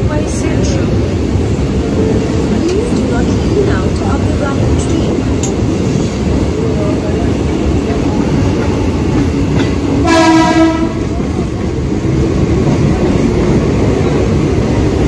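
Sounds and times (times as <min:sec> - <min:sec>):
train wheels rumbling on track: 0:00.0 - 0:15.0
train horn: 0:10.0 - 0:11.2.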